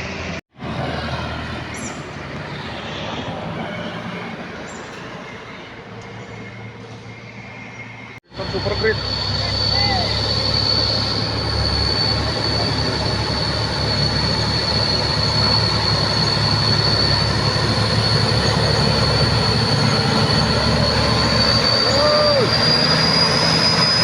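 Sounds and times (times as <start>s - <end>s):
truck diesel engine under load: 0.0s - 6.0s, 8.1s - 24.0s
high whine: 7.3s - 24.0s.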